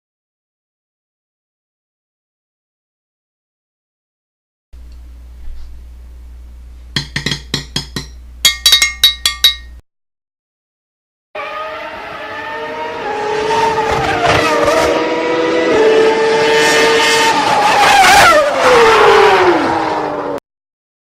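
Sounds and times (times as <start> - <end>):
vehicle engine whining at high revs: 11.4 - 20.4.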